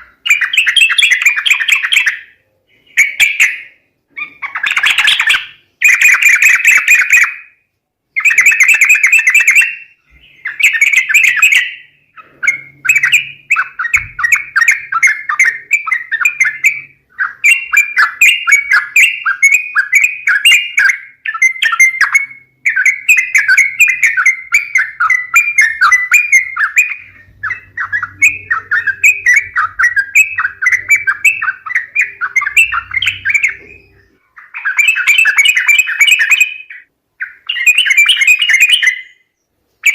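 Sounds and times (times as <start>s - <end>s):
bird bubbly chattering calls: 8.2s - 39.0s.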